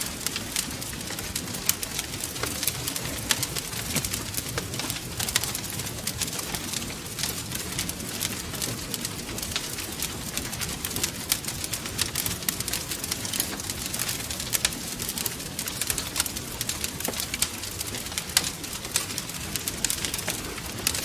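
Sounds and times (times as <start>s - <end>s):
fire popping and snapping: 0.0s - 21.0s
fire rumbling: 0.0s - 21.0s.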